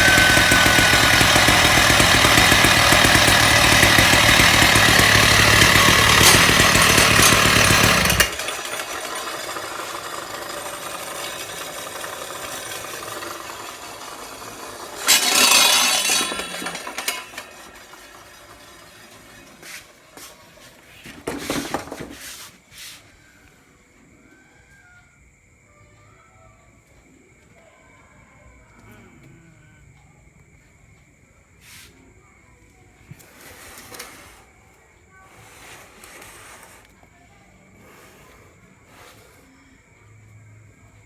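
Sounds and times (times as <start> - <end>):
clatters: 0.0 - 22.2
concrete saw running: 0.0 - 22.2, 33.1 - 37.0, 37.7 - 39.6.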